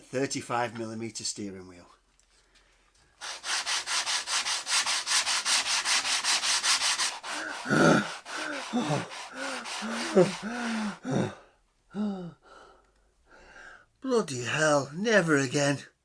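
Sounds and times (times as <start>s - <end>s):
sandpaper sanding wood: 3.2s - 11.1s
person groaning: 7.5s - 11.4s, 12.0s - 12.4s.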